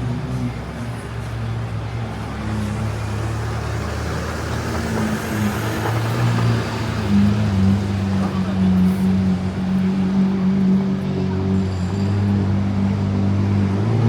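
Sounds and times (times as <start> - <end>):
street noise: 0.0 - 14.0
vehicle engine humming: 0.0 - 14.0.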